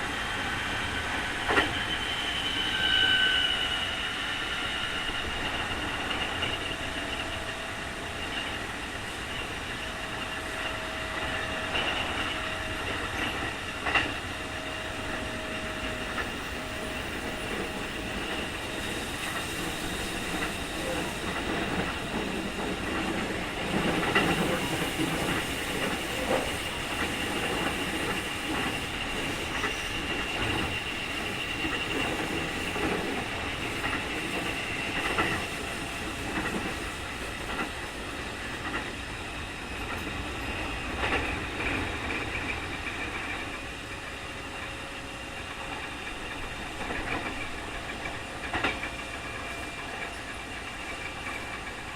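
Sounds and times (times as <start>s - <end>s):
wheel and rail noise: 0.0s - 51.9s
rail-joint clicks: 1.2s - 3.6s, 5.2s - 7.6s, 8.2s - 51.9s.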